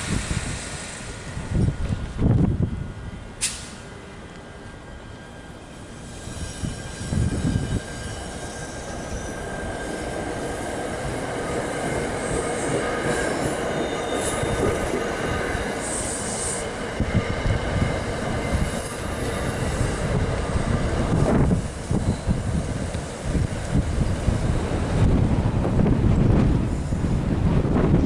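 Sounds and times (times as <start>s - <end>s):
wind gusting on microphone: 0.0s - 3.4s, 6.0s - 28.0s
train rumbling on rails: 0.0s - 28.0s
wheel squeals: 6.0s - 10.0s, 13.0s - 15.0s, 21.8s - 22.5s.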